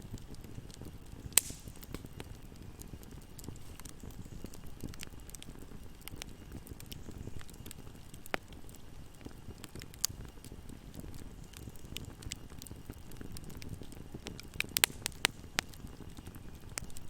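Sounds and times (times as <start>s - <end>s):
fire crackling and popping: 0.0s - 17.0s
wood fire flames rumbling: 0.0s - 17.0s.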